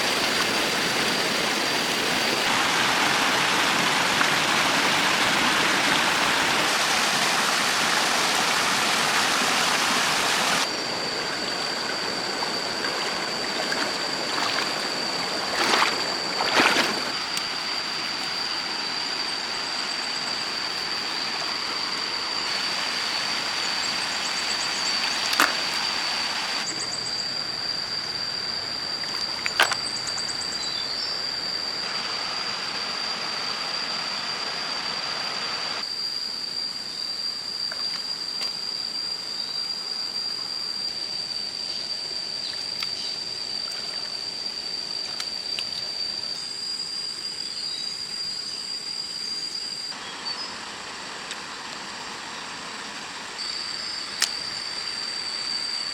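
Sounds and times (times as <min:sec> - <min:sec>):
river water rushing: 0:01.4 - 0:10.7.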